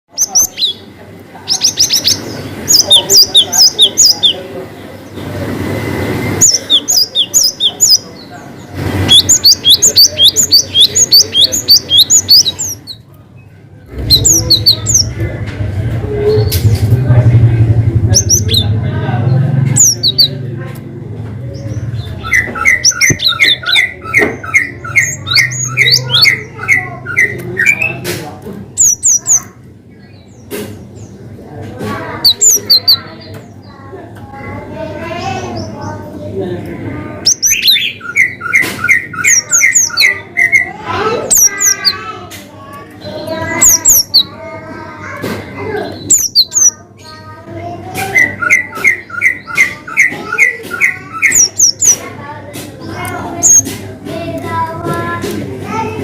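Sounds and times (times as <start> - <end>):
bird singing: 0.1 - 5.2, 6.2 - 15.2, 18.0 - 20.4, 21.4 - 28.0, 28.8 - 31.4, 32.1 - 33.9, 37.1 - 42.1, 42.7 - 44.4, 45.6 - 47.4, 48.0 - 52.1, 52.8 - 53.7.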